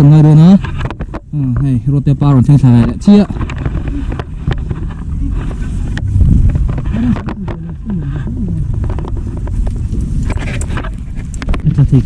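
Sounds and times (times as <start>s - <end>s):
heavy machine engine rumble: 0.0s - 12.0s
faint voices: 2.6s - 9.6s.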